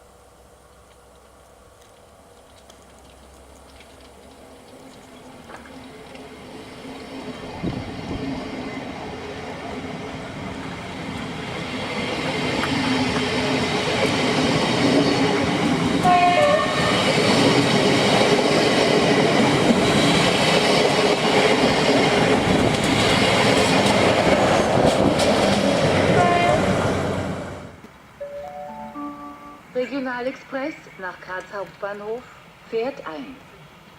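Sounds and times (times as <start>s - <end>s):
train rail and wheel noise: 4.0s - 33.9s
high-pitched tone: 28.2s - 29.9s.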